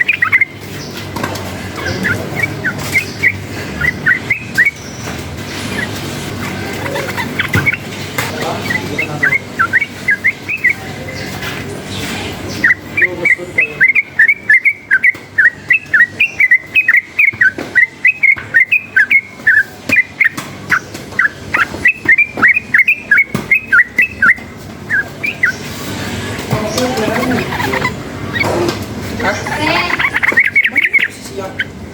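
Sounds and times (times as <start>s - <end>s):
bulbul singing whistled notes: 0.0s - 0.9s, 1.8s - 5.0s, 8.7s - 10.9s, 12.5s - 25.6s, 30.0s - 31.1s.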